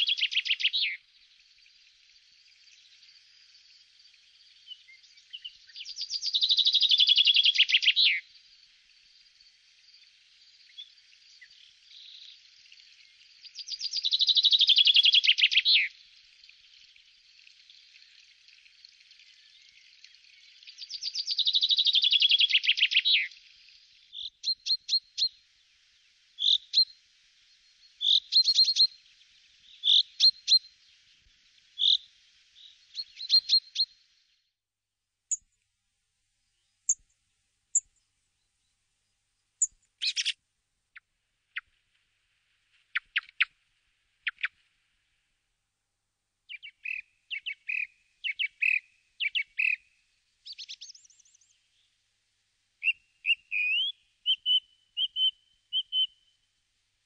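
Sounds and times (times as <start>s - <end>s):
songbird singing falling notes: 39.6s - 40.4s, 42.9s - 43.5s, 52.8s - 56.2s.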